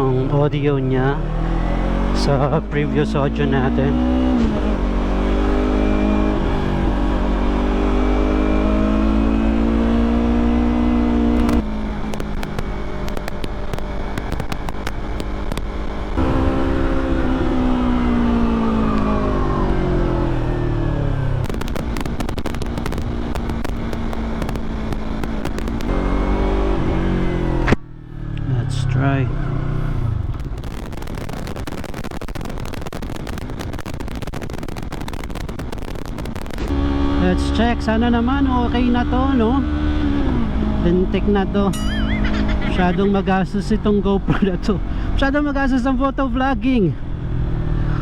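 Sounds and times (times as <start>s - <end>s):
motorcycle engine under way: 0.0s - 45.2s
wind noise: 9.6s - 27.7s
sharp crackling clicks: 11.3s - 16.2s, 21.4s - 26.1s, 30.2s - 36.7s.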